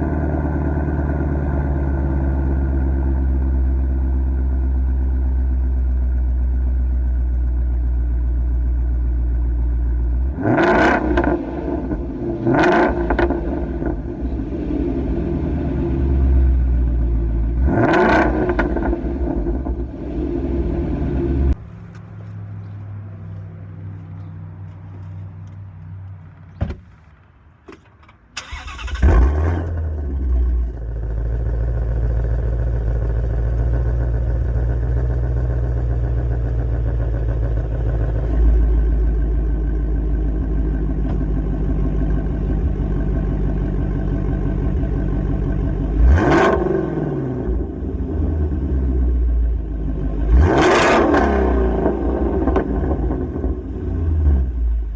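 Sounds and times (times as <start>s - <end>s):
car engine starting and idling: 0.0s - 23.4s, 27.7s - 54.9s
engine throttle blips: 28.4s - 54.9s.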